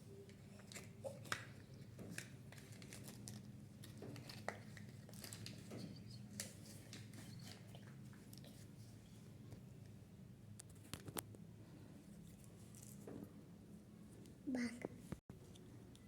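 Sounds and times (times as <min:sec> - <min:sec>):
foil wrapper crinkling: 0:00.6 - 0:05.6.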